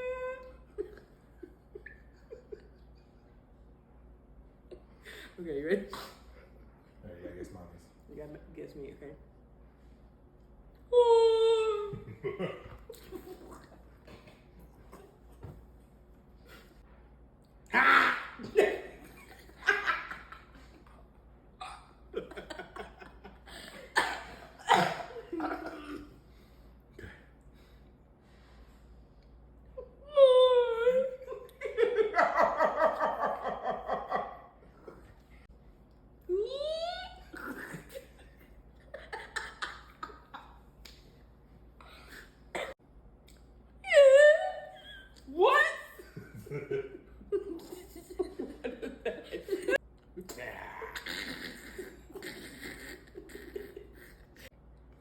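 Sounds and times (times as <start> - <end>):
laughter: 0.8 - 3.4, 11.9 - 13.6, 18.4 - 21.0, 22.1 - 26.0, 31.2 - 35.0, 37.3 - 40.6, 46.0 - 49.8, 51.0 - 54.5
person making silly vocal sounds: 50.2 - 53.5.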